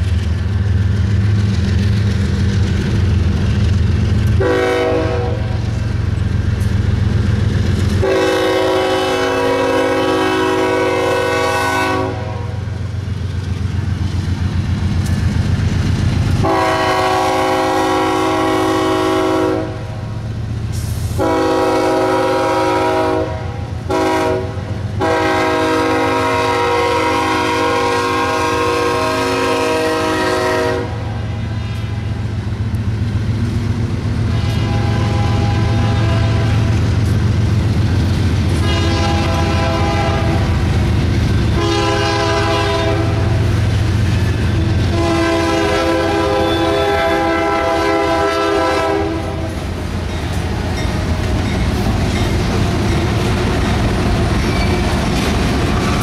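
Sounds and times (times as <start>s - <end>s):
train wheels clacking over rail joints: 0.0s - 9.8s, 12.8s - 17.9s, 31.7s - 56.0s
diesel locomotive rumble: 0.0s - 56.0s
locomotive air horn blasts: 4.4s - 5.6s, 8.0s - 12.7s, 16.4s - 20.1s, 21.1s - 31.7s, 34.3s - 36.8s, 38.6s - 40.6s, 41.5s - 43.4s, 44.6s - 49.6s.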